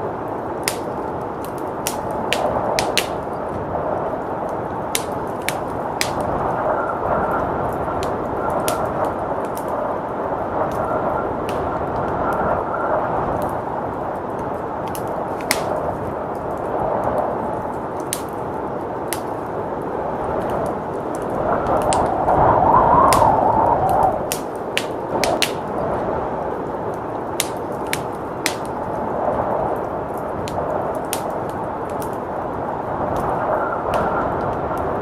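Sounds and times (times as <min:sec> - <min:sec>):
blizzard wind rushing: 0:00.0 - 0:35.0
wood fire crackling and popping: 0:00.0 - 0:35.0.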